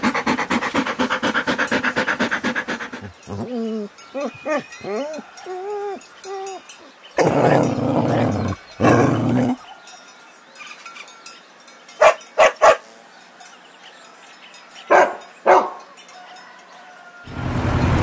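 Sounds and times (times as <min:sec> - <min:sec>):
dog barking: 0:12.0 - 0:12.9, 0:14.9 - 0:15.9.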